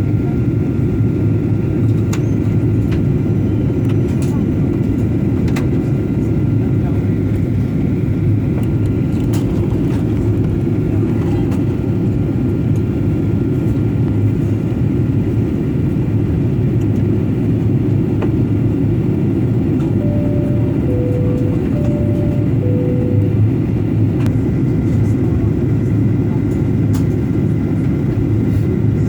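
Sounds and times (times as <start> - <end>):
airliner cabin noise: 0.4 - 16.0, 16.8 - 28.8
faint two-note tone: 20.0 - 24.1.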